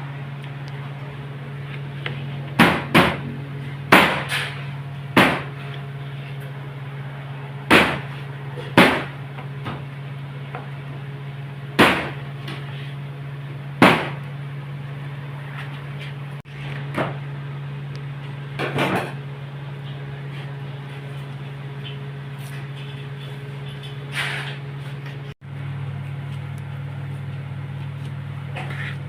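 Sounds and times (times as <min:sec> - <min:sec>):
steady low hum: 0:00.0 - 0:29.0
sharp knocks: 0:02.6 - 0:03.3, 0:03.9 - 0:04.5, 0:05.2 - 0:05.5, 0:07.7 - 0:08.1, 0:08.7 - 0:09.8, 0:13.8 - 0:14.2.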